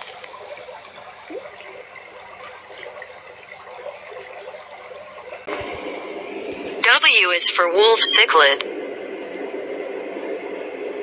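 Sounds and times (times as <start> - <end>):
aquarium water trickling: 0.0 - 5.6.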